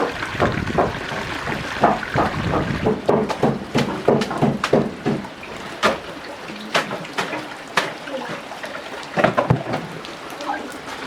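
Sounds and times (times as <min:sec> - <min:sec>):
water splashing: 0:00.0 - 0:11.0.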